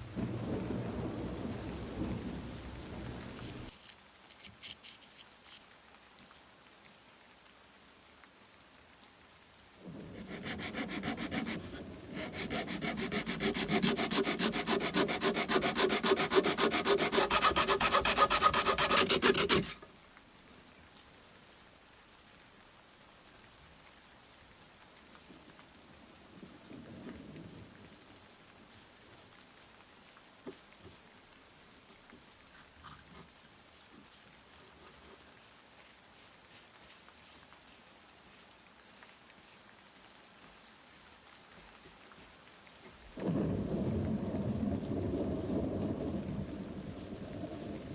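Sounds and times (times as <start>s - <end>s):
sandpaper rubbing by hand: 10.2s - 19.9s, 24.6s - 43.0s, 43.9s - 47.9s.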